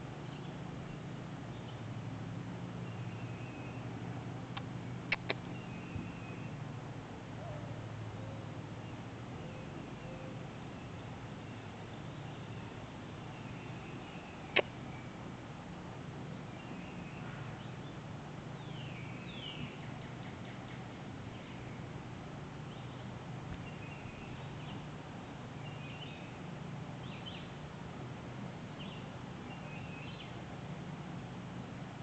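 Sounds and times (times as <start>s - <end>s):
steady low hum: 0.0s - 32.0s
small birds chirping: 2.8s - 6.6s, 22.6s - 26.4s, 28.8s - 30.4s.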